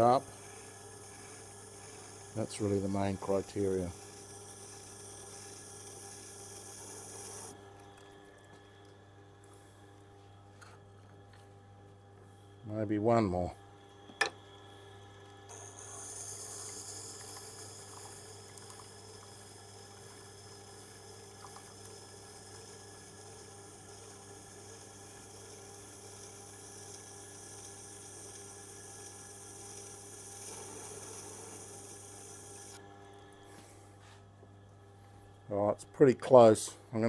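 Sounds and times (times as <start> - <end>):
grinder motor hum: 0.0 - 8.9, 12.8 - 34.2.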